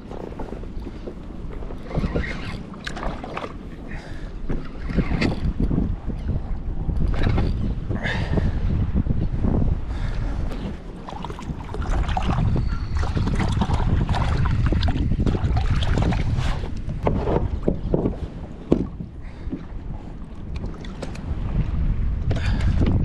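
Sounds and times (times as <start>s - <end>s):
water splashing against kayak hull: 0.0s - 3.9s, 10.5s - 21.7s
wind buffeting microphone: 0.0s - 23.0s.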